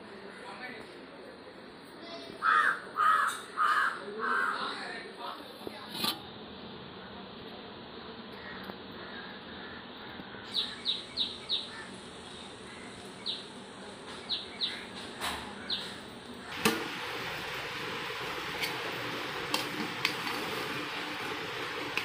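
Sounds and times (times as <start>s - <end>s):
steady hiss: 8.9s - 22.0s
small bird chirping: 10.4s - 13.6s, 14.2s - 14.9s.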